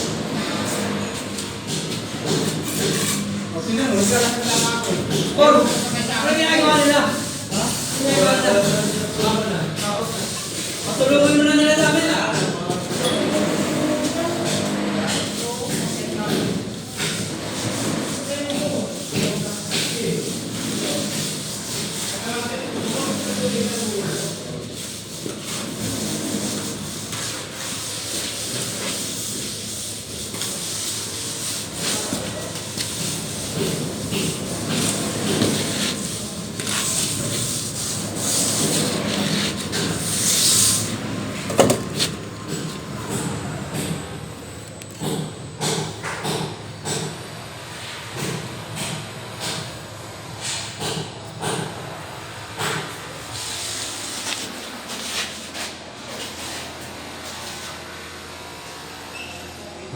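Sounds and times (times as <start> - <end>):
trowel scraping wet plaster: 1.7 - 42.9, 53.3 - 57.8.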